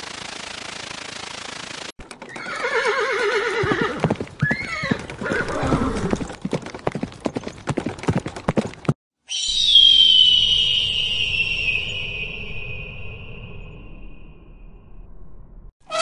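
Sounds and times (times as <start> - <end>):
hooves clip-clopping: 2.0 - 9.0
horse neighing: 2.3 - 6.2.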